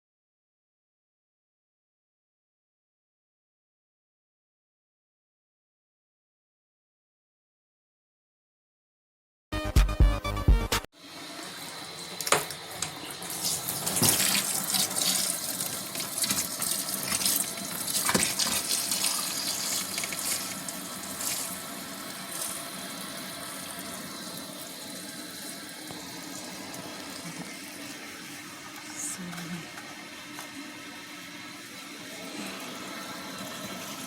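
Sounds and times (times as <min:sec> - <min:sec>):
water splashing in washing machine: 0:11.0 - 0:34.0.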